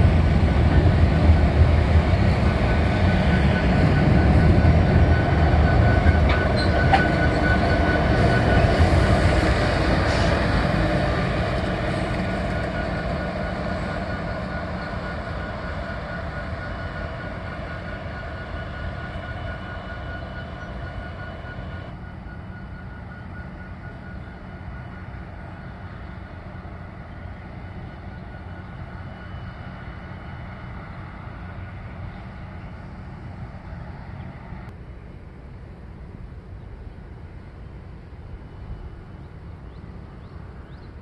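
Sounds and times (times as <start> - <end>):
train rumble: 0.0 - 41.0
train horn: 3.0 - 25.6.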